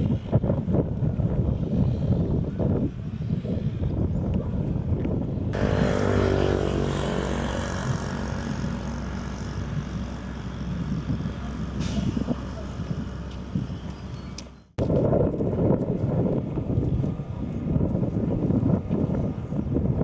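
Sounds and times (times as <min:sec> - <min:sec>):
engine running: 0:05.5 - 0:14.8.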